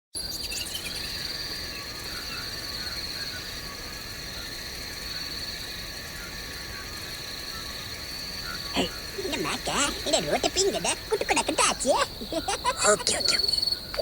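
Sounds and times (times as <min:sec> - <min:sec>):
high-pitched insect chorus: 0:00.2 - 0:14.0
faint short frog calls: 0:08.4 - 0:14.0.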